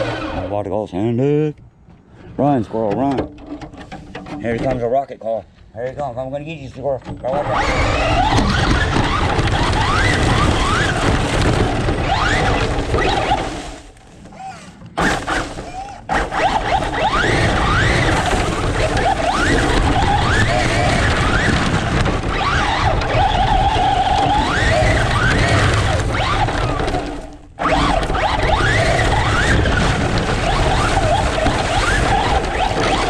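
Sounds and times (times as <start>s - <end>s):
toy truck motor whining: 0.0s - 0.6s, 7.4s - 13.4s, 14.4s - 33.0s
tyres rushing on dirt: 7.2s - 14.0s, 15.0s - 33.0s.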